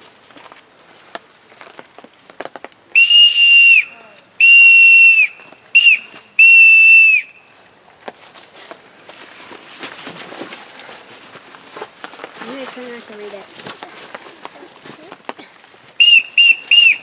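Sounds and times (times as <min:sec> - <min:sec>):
shrill whistle blasts: 0:03.0 - 0:07.5, 0:16.0 - 0:17.0.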